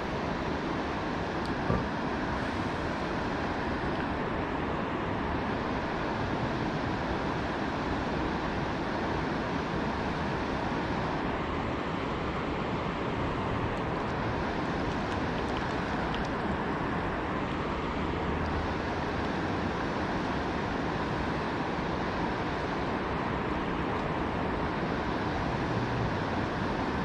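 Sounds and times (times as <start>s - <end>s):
water pouring through a spillway: 13.7s - 16.8s.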